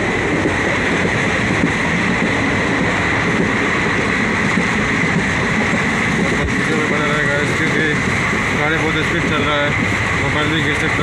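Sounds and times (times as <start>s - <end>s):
train wheels rumbling on rails: 0.0s - 11.0s
wind noise: 0.0s - 11.0s.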